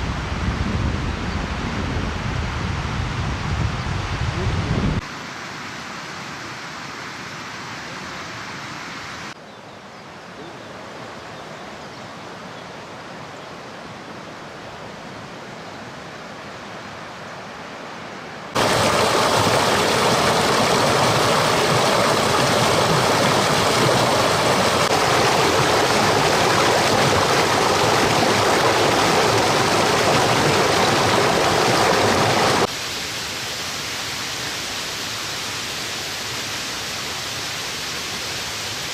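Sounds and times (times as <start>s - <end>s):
running water rushing: 16.2s - 38.9s.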